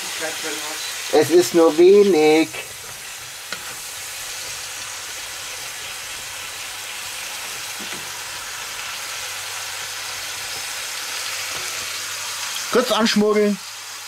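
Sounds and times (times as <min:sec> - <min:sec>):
mushrooms sizzling in a pot: 0:00.0 - 0:14.0.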